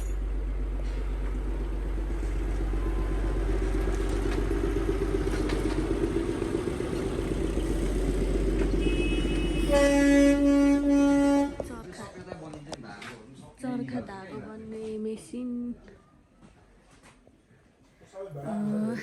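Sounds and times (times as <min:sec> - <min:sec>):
vehicle engine running: 0:00.0 - 0:11.6
road traffic noise: 0:00.0 - 0:13.5
vehicle horn: 0:08.6 - 0:11.8.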